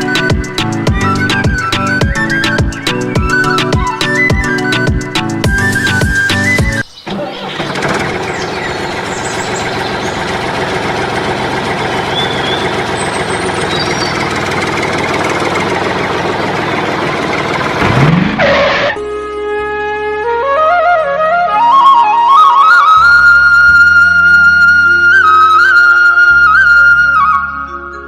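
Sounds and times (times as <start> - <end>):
engine-like running noise: 0.0 - 19.0.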